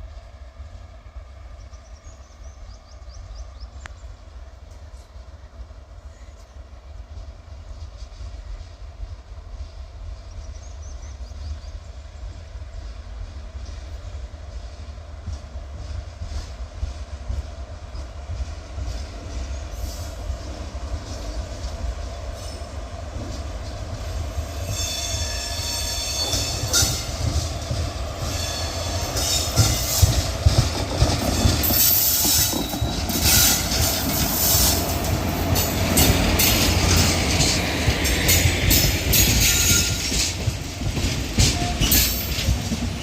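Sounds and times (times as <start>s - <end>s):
train rumbling past: 0.0s - 43.0s
wheels squealing on rails: 21.0s - 43.0s.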